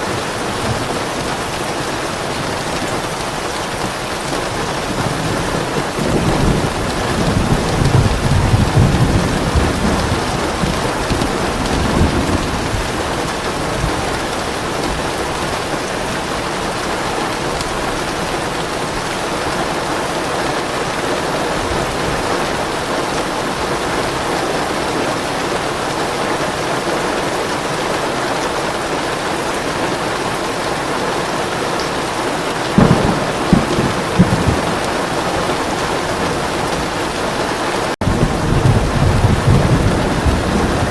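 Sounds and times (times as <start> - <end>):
thunder rumbling: 0.0 - 27.6, 32.0 - 40.9
heavy rain: 0.0 - 40.9
thunderclap: 4.6 - 16.3, 32.7 - 40.9.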